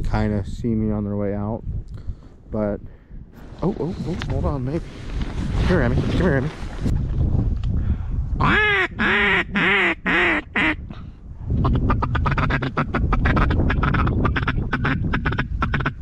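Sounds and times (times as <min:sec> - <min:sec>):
duck call quacks: 0:08.4 - 0:10.8, 0:11.7 - 0:16.0
duck call clucking chuckle: 0:08.5 - 0:10.8, 0:11.6 - 0:16.0.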